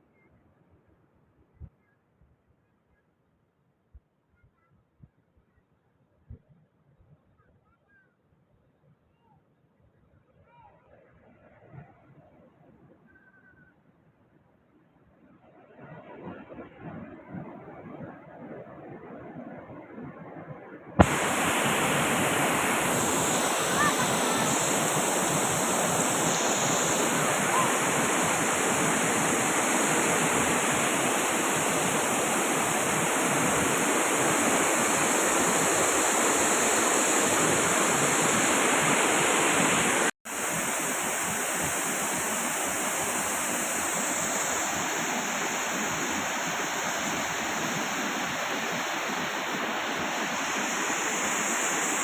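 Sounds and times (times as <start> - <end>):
waterfall rushing: 21.0 - 52.0.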